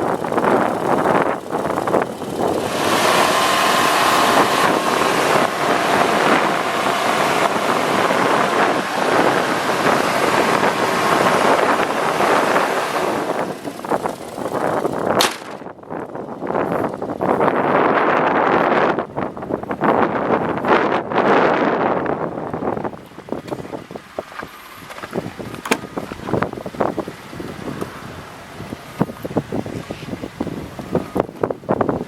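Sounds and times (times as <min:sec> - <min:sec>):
wind buffeting microphone: 0:00.0 - 0:32.0
sharp click: 0:15.2 - 0:15.7.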